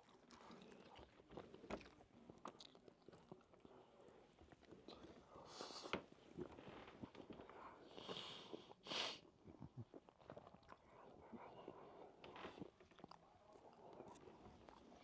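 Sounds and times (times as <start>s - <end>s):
faint chewing: 0.0s - 8.7s, 9.4s - 15.0s.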